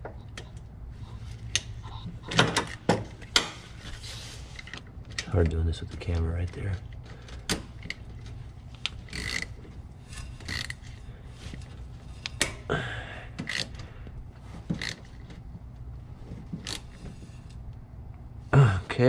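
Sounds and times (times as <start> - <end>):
low steady hum: 0.0 - 19.0
hand tools clicking and clinking: 7.5 - 12.6, 13.4 - 13.8.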